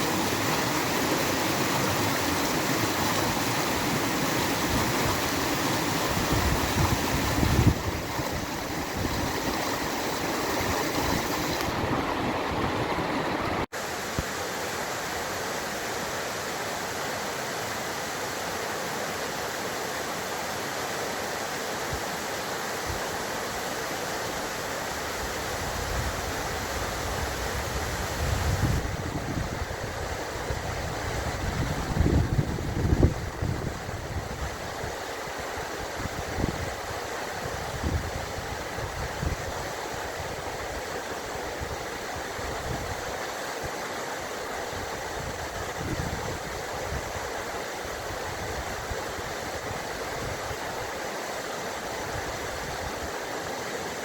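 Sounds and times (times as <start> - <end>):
running stream: 0.0 - 54.0
wind buffeting microphone: 6.0 - 13.7, 25.6 - 34.9, 45.2 - 47.1.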